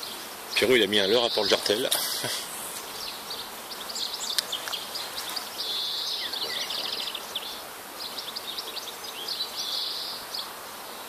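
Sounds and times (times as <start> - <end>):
outdoor background noise: 0.0 - 11.0
small songbirds chirping: 0.0 - 11.0
bird trill: 3.7 - 7.5.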